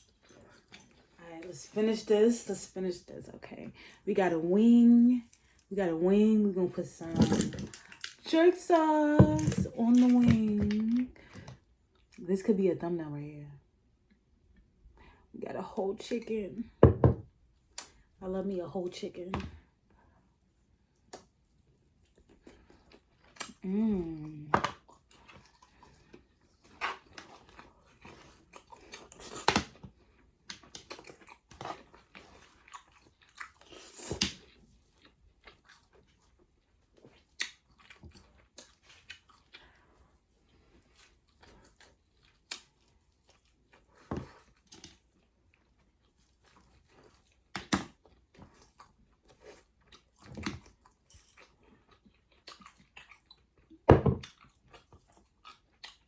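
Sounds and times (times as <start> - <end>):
person chewing and biting chicken: 48.0 - 56.0.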